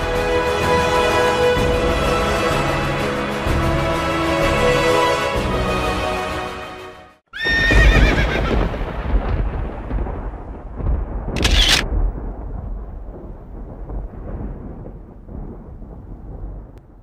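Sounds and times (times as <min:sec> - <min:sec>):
music: 0:00.0 - 0:07.2
horse neighing: 0:07.4 - 0:08.5.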